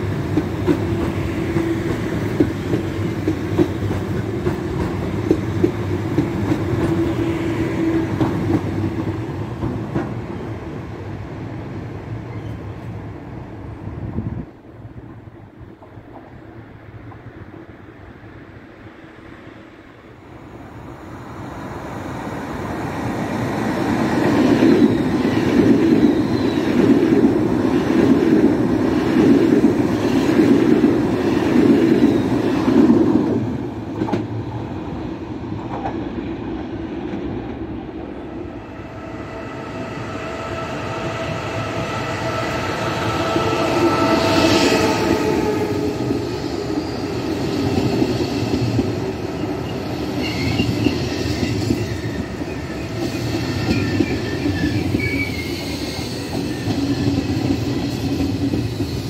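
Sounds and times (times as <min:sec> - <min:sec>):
high-speed train rumbling past: 0:00.0 - 0:59.0
train whine: 0:00.0 - 0:59.0
high wheel squeal: 0:39.0 - 0:48.7, 0:49.4 - 0:59.0.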